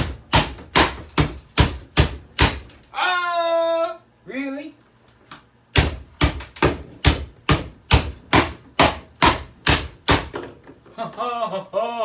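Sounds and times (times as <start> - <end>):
hammering on plastic: 0.0 - 2.8, 5.7 - 10.6.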